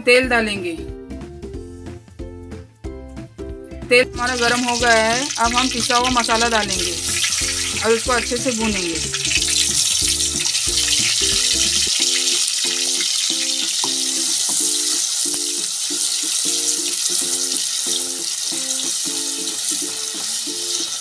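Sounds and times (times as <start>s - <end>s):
background music: 0.0s - 21.0s
paste sizzling in hot oil: 4.2s - 21.0s.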